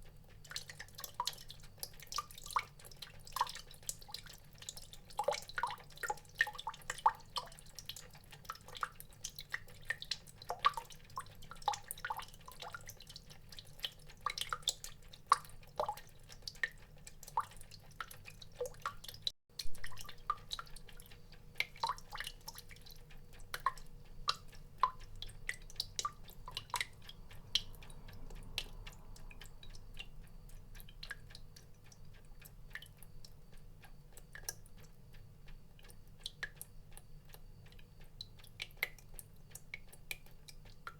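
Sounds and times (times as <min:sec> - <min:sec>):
water drops plinking: 0:19.6 - 0:20.7.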